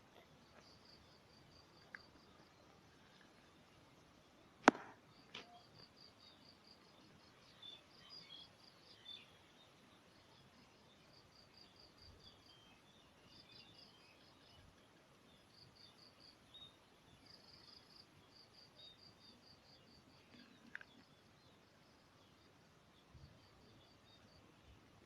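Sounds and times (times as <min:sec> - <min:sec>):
faint insect chirping: 0:00.0 - 0:25.0
faint bird chirps: 0:05.1 - 0:25.0.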